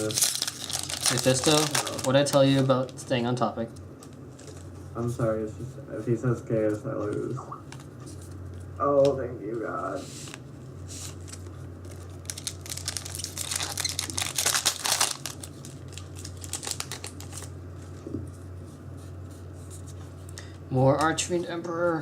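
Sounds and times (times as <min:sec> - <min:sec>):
foil wrapper crinkling and tearing: 0:00.0 - 0:03.2, 0:11.2 - 0:17.5.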